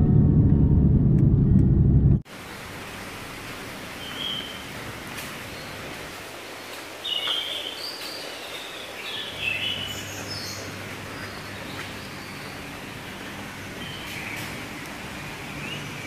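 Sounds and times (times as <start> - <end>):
outdoor background noise: 0.0 - 16.0
small birds chirping: 3.9 - 16.0.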